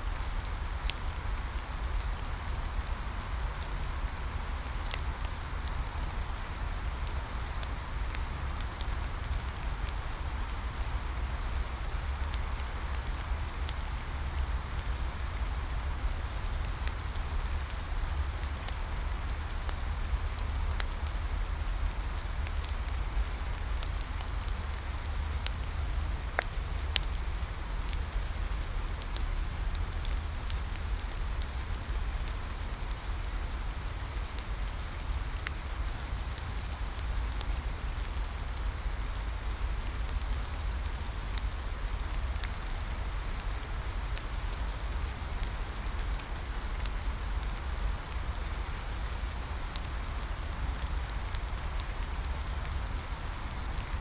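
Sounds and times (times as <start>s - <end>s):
constant low rumble: 0.0s - 54.0s
rain falling: 0.0s - 54.0s
bonfire crackling: 0.1s - 54.0s.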